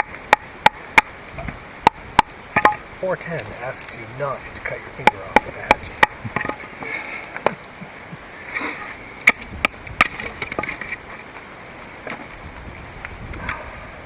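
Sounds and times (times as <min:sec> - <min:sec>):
hatchet chopping wood: 0:00.0 - 0:01.2, 0:01.8 - 0:02.9, 0:05.0 - 0:06.6, 0:09.2 - 0:10.8.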